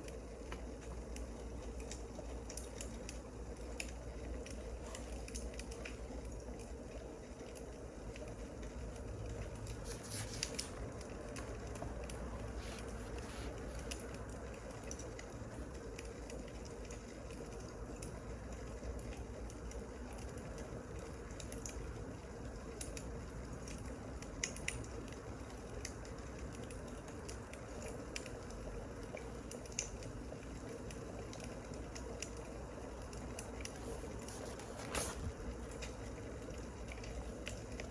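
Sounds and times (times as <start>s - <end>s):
steady low hiss: 0.0s - 17.2s, 30.0s - 37.9s
wood fire crackling: 0.0s - 37.9s.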